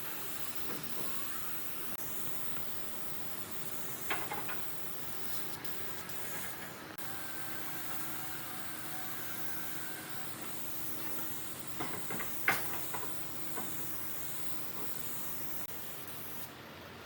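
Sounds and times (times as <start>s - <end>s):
steady hiss: 0.0s - 17.0s
light clicks and knocks: 10.4s - 13.9s.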